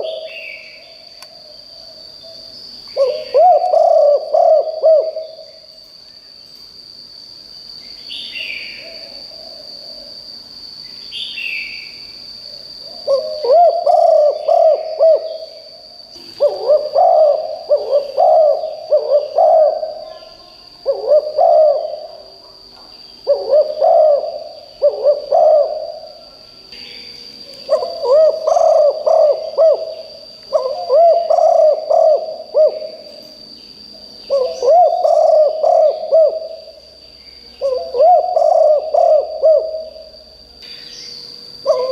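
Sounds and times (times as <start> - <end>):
dove cooing: 0.0 - 0.7, 1.4 - 5.6, 12.9 - 22.4, 23.2 - 26.4, 27.7 - 33.2, 34.3 - 36.8, 37.6 - 40.2, 41.6 - 41.9.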